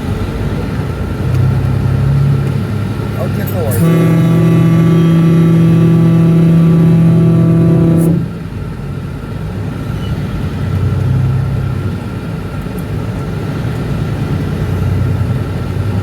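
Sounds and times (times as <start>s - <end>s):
road vehicles rumbling: 0.0s - 16.0s
loud steady pitched tone: 1.2s - 8.5s.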